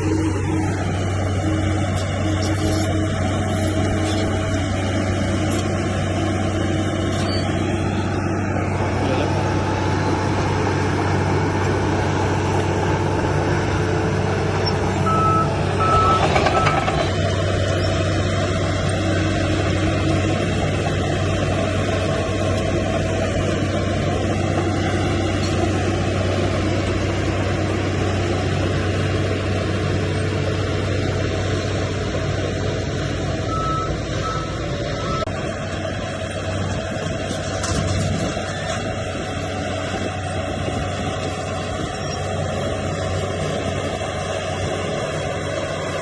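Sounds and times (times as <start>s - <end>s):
heavy machinery diesel engine: 0.0s - 46.0s
reversing alarm beeps: 15.0s - 17.0s, 33.5s - 35.3s.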